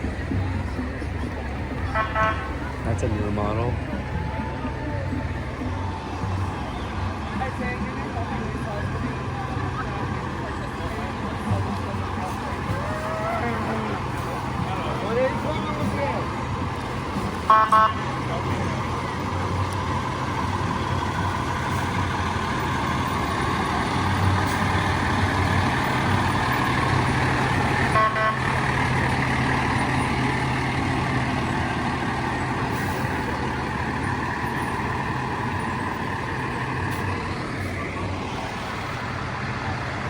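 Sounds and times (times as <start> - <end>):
fire truck engine running: 0.0 - 40.0
short horn blast: 1.9 - 2.6, 27.9 - 28.6.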